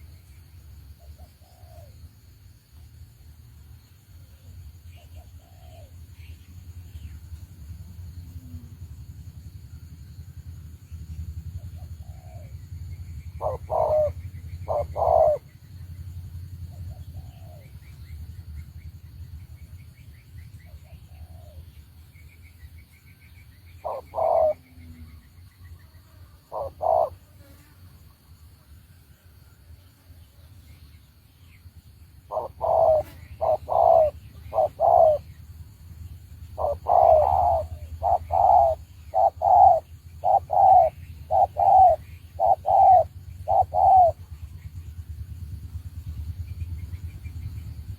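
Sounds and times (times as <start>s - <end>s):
dove cooing: 1.0s - 2.0s, 4.9s - 6.0s, 11.6s - 12.6s, 13.3s - 16.0s, 16.7s - 17.8s, 20.8s - 21.6s, 23.8s - 25.3s, 26.5s - 27.2s, 32.3s - 35.4s, 36.4s - 44.5s
small birds chirping: 10.8s - 27.7s, 29.9s - 47.9s
low rumble: 44.1s - 47.9s.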